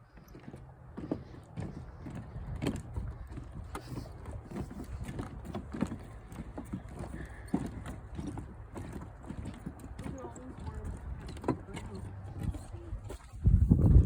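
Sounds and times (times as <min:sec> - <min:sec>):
footsteps on wooden boardwalk: 0:00.0 - 0:14.0
wind rumble on microphone: 0:01.6 - 0:06.0, 0:10.2 - 0:14.0.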